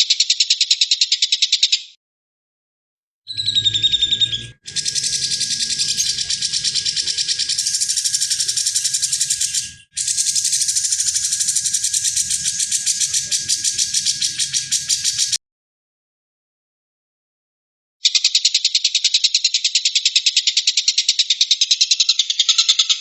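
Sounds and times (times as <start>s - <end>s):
songbird rattling trills: 3.3s - 15.4s, 18.0s - 23.0s.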